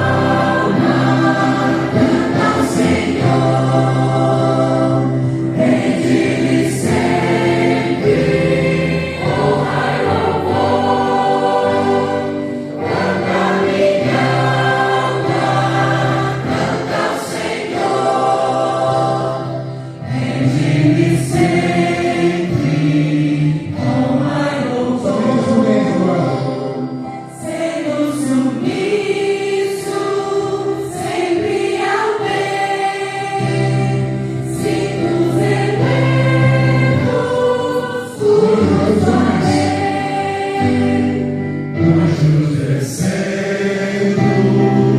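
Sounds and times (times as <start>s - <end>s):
choir singing a hymn: 0.0s - 44.9s.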